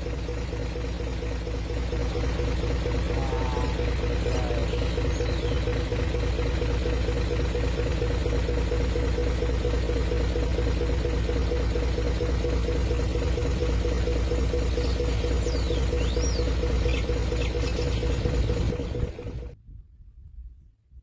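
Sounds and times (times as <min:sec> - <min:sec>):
vehicle engine idling: 0:00.0 - 0:19.6.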